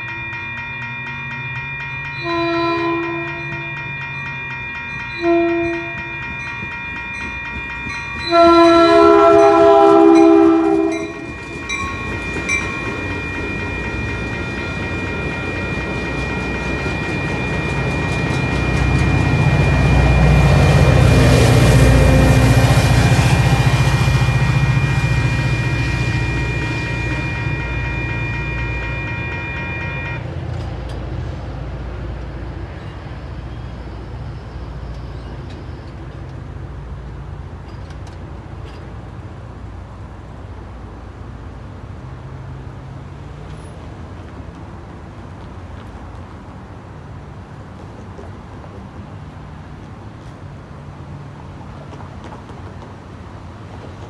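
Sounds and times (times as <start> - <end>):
railroad crossing bells ringing: 0.0 - 30.6, 32.4 - 41.1
train wheels rumbling on rails: 0.0 - 54.0
train horn blasts: 2.2 - 3.7, 5.2 - 6.2, 8.2 - 11.3, 21.0 - 30.2.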